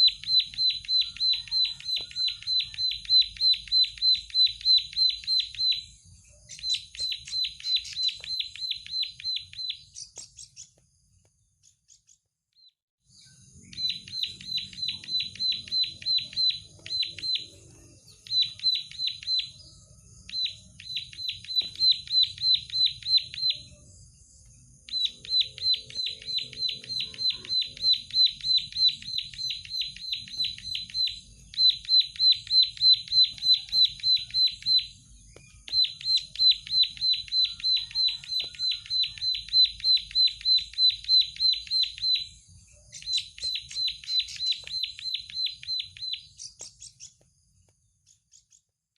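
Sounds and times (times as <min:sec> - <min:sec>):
bird singing sharp repeated notes: 0:00.0 - 0:48.9.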